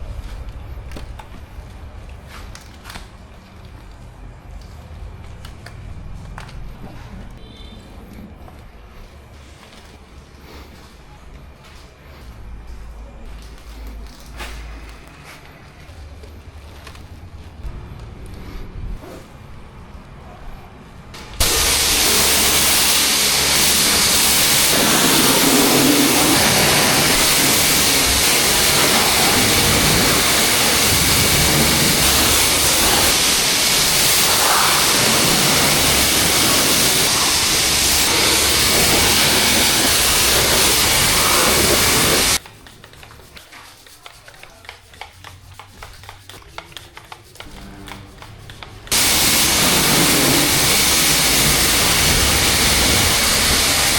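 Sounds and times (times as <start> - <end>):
low motor hum: 17.6 - 21.1
pressure washer spraying water: 21.4 - 42.4, 48.9 - 53.9.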